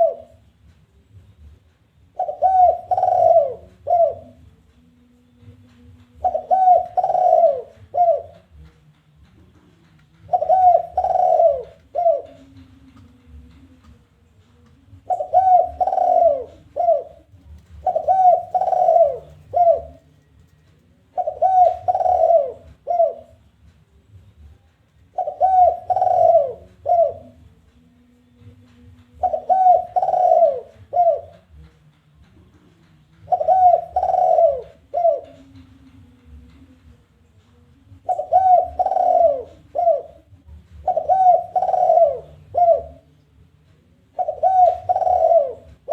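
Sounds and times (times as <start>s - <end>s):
dove cooing: 0.0s - 0.4s, 2.2s - 4.4s, 6.2s - 8.6s, 10.2s - 14.0s, 14.9s - 23.5s, 25.0s - 27.5s, 29.2s - 31.6s, 33.2s - 36.5s, 38.0s - 43.1s, 44.1s - 45.9s.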